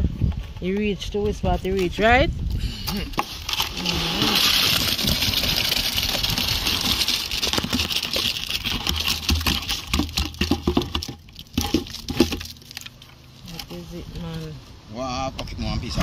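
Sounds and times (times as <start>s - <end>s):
wet concrete pouring: 3.2s - 13.7s.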